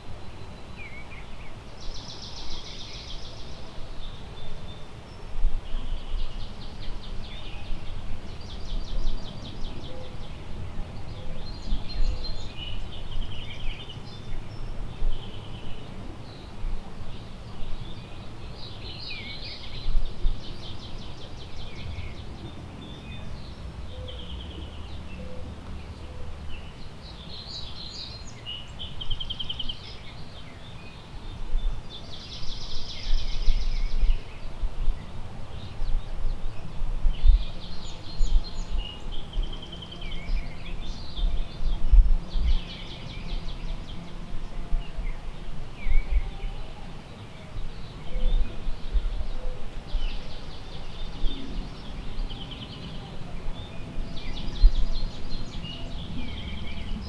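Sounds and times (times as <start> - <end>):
songbirds chirping and trilling: 0.0 - 57.0
wind rumble on microphone: 0.0 - 57.0.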